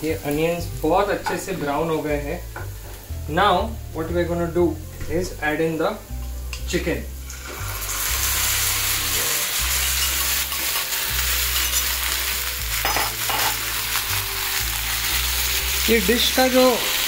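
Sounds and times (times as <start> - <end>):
chicken sizzling in frying pan: 5.2 - 17.0.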